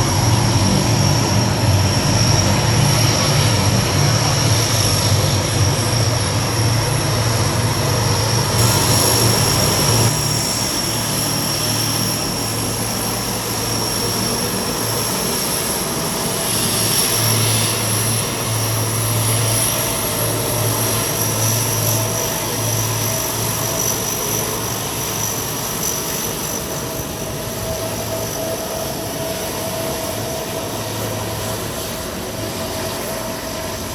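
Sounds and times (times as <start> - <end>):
engine roar: 0.0 - 23.7
aircraft engines whining: 0.0 - 33.9.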